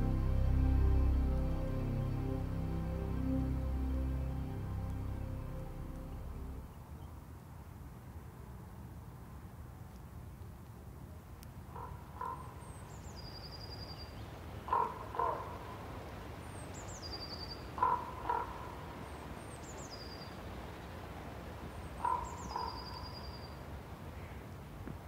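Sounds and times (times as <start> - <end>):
low background rumble: 0.0 - 6.9.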